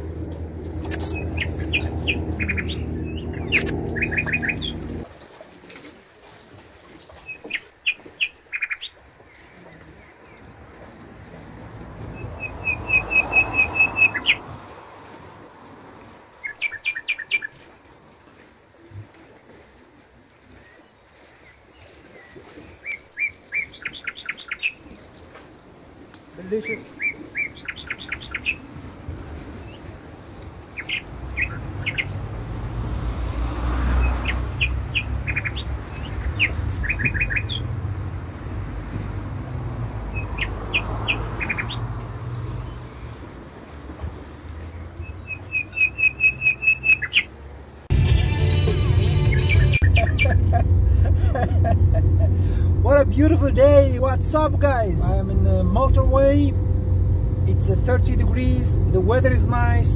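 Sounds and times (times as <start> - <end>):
steady low rumble: 0.0 - 5.1, 49.7 - 59.9
songbird singing: 0.0 - 18.0, 18.8 - 38.3, 39.6 - 47.6, 48.9 - 50.9
small birds chirping: 0.8 - 11.0, 12.2 - 14.4, 16.4 - 17.6, 20.4 - 25.1, 26.4 - 28.8, 30.7 - 32.2, 33.9 - 37.7, 40.1 - 43.3, 44.4 - 47.4.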